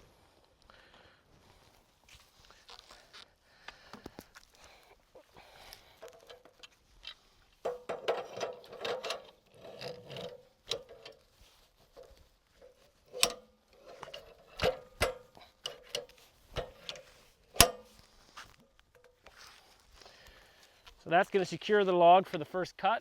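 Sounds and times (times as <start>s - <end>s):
metal log clamp clicking and clanking: 6.0s - 11.2s, 11.9s - 18.0s, 18.7s - 19.3s.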